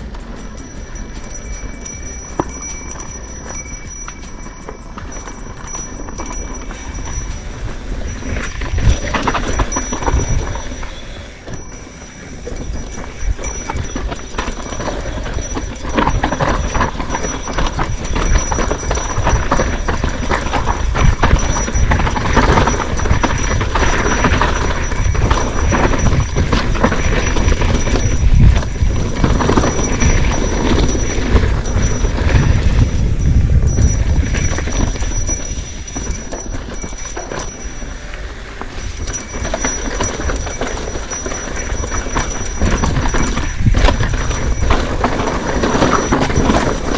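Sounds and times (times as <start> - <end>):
heavy low rumble: 0.0 - 23.9, 46.0 - 46.9
bike rattling on rough trail: 0.0 - 46.9.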